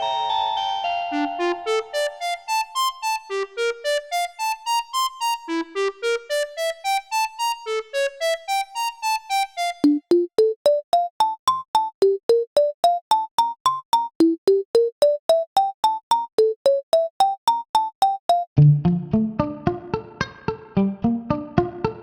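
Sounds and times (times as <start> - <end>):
piano-like keyboard melody: 0.0 - 18.5
sharp clicky instrument melody: 8.5 - 18.6.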